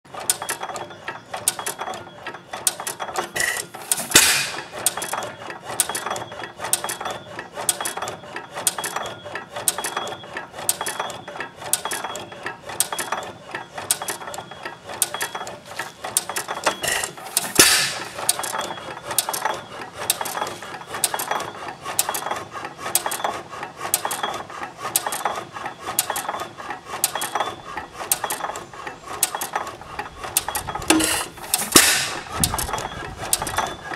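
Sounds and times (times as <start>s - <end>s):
rapid clicking of valve gear: 0.1s - 33.9s
single-cylinder engine running: 0.1s - 33.9s.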